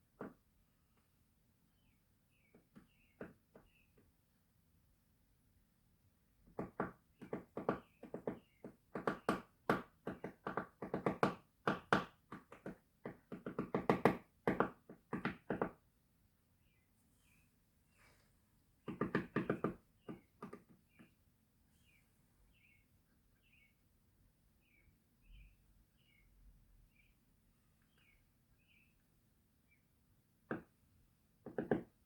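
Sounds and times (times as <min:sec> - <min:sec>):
woodpecker knocking on wood: 0:02.5 - 0:04.1, 0:06.5 - 0:15.8, 0:18.8 - 0:21.2, 0:30.5 - 0:30.8, 0:31.4 - 0:32.0.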